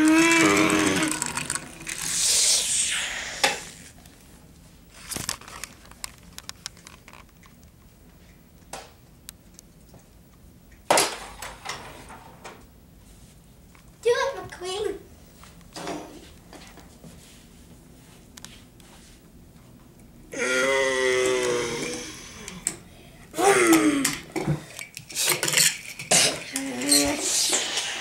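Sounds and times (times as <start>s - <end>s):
toy cars clattering: 0.4s - 2.4s
rushing hiss: 2.1s - 3.9s
child's voice: 14.0s - 15.1s, 26.5s - 27.5s.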